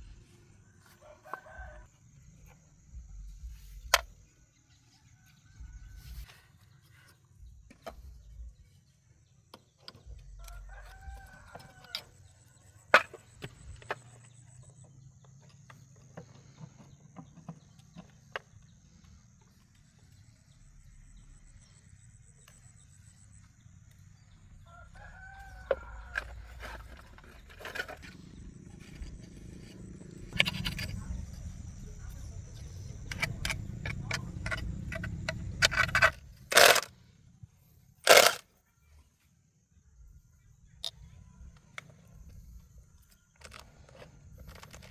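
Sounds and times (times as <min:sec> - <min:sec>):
rooster crowing: 0:01.0 - 0:01.9, 0:10.5 - 0:12.0, 0:24.7 - 0:26.3
sharp clicks and knocks: 0:35.0 - 0:36.9, 0:38.1 - 0:38.4.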